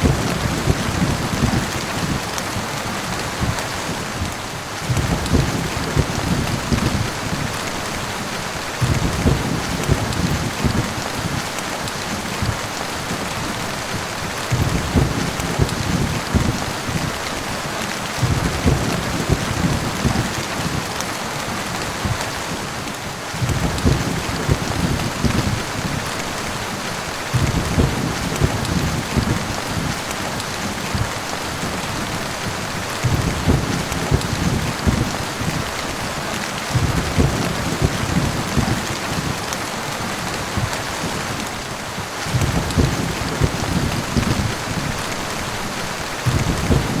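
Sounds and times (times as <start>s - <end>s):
heavy rain falling: 0.0s - 47.0s
thunder rumbling: 0.0s - 47.0s
low thuds: 4.2s - 7.2s, 14.5s - 17.0s, 27.3s - 30.0s, 33.0s - 35.2s, 46.2s - 47.0s.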